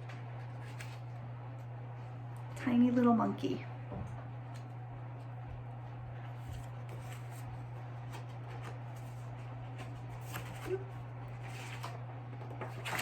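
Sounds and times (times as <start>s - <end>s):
paper rustling and clicking: 0.0s - 1.1s, 6.4s - 13.0s
low electrical hum: 0.0s - 13.0s
book page turning: 0.4s - 1.1s, 6.4s - 12.0s.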